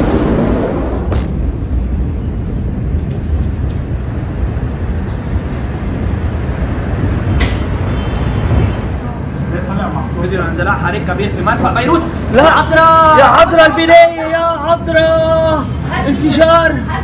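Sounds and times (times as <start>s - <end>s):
sharp cracks: 0.0s - 1.8s
low rumble: 0.0s - 9.6s.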